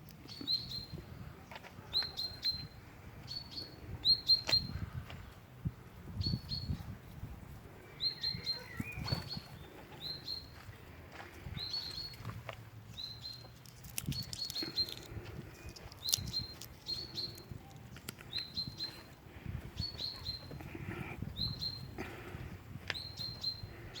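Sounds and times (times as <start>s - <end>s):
small bird chirping: 7.9s - 10.6s, 12.9s - 19.1s, 19.8s - 20.6s.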